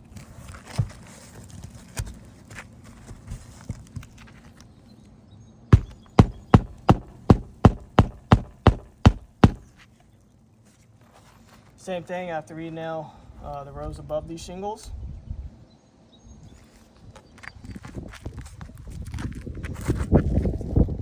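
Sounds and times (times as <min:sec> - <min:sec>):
hammer striking a nail: 0:05.8 - 0:09.7.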